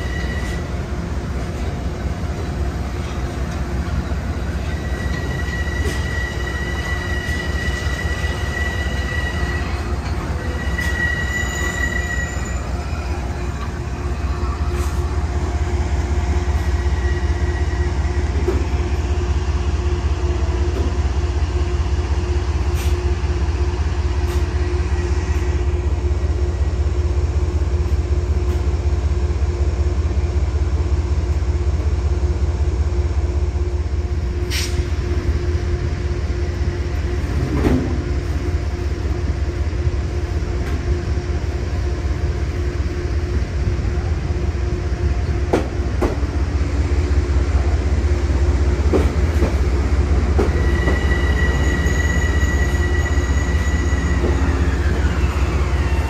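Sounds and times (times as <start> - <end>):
train wheels squealing: 0.0 - 0.8, 4.0 - 15.2, 16.4 - 18.5, 49.4 - 56.0
train rolling on rails: 0.0 - 56.0.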